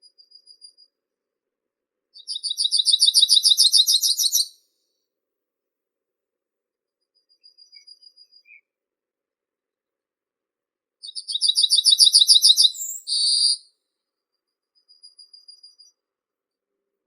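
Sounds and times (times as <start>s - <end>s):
songbird singing: 2.2s - 4.6s, 7.3s - 8.7s, 11.0s - 13.7s.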